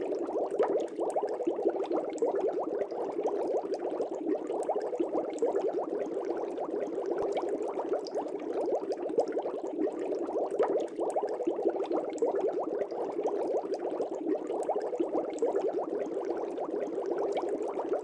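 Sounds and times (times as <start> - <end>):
air bubbles in fish tank: 0.0 - 18.0.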